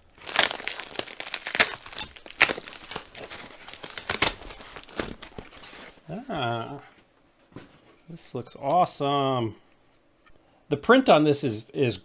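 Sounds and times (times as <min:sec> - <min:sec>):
packing material crinkling and tearing: 0:00.0 - 0:07.0.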